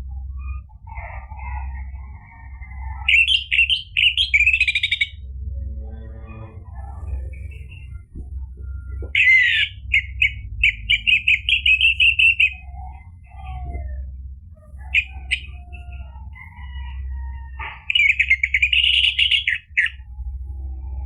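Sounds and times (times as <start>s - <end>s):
steady low hum: 0.0s - 21.0s
thrush singing: 3.0s - 14.0s.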